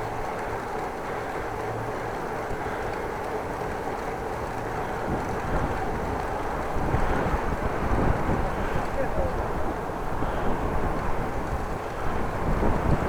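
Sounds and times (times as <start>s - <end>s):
wind buffeting microphone: 5.0s - 13.0s.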